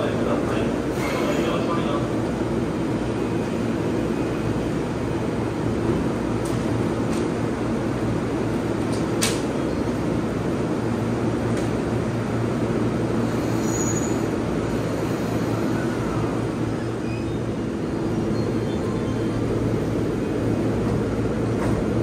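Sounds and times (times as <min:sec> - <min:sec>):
electric train humming: 0:10.0 - 0:22.0.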